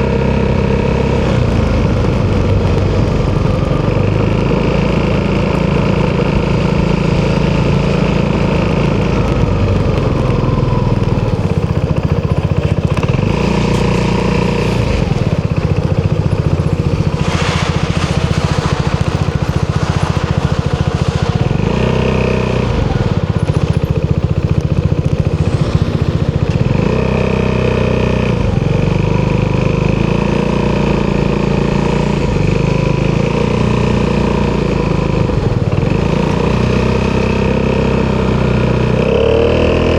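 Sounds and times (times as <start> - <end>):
scooter engine at low revs: 0.0 - 39.9.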